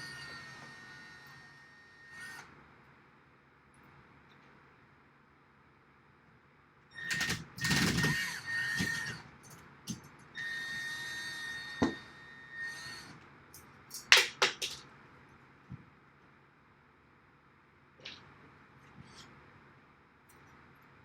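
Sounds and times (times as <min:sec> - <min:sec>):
power drill whining: 0:07.1 - 0:09.2.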